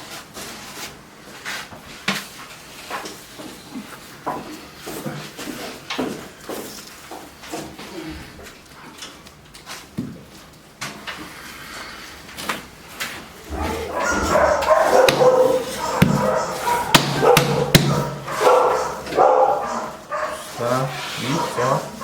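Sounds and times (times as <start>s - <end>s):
dog barking and whining: 13.4s - 22.0s
sharp knocks: 13.5s - 18.9s.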